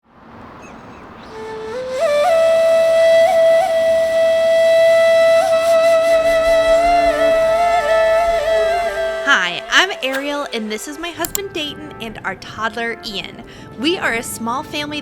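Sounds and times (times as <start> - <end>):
flute music: 1.2 - 12.6.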